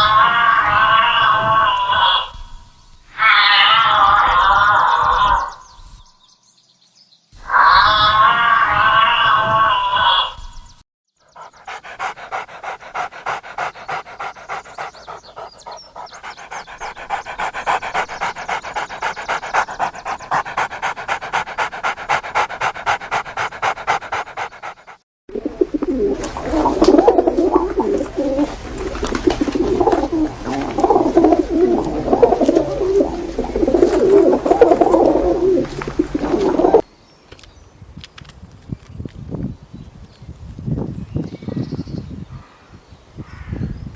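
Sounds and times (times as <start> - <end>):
rapid animal breaths or calls: 11.2 - 25.0, 26.1 - 36.8
rough low animal sounds: 11.2 - 36.8.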